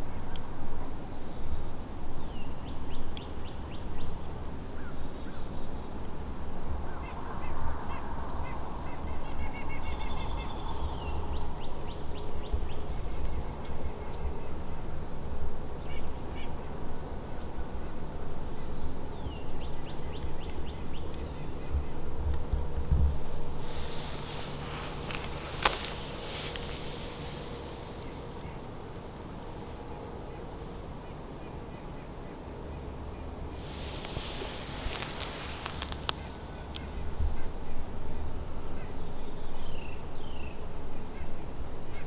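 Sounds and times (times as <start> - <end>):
low steady rumble: 0.0 - 42.0
birds calling: 23.2 - 28.9, 33.2 - 37.8.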